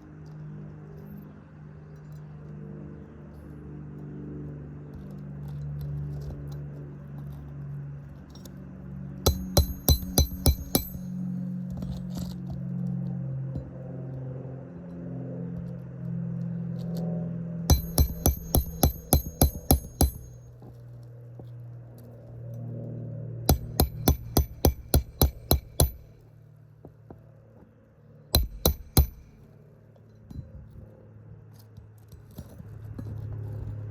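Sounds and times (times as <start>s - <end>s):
steady low hum: 9.1s - 11.6s, 15.9s - 27.2s, 28.0s - 29.8s
hammer striking nail: 9.3s - 11.2s, 17.7s - 20.4s, 23.5s - 26.1s, 28.4s - 29.4s.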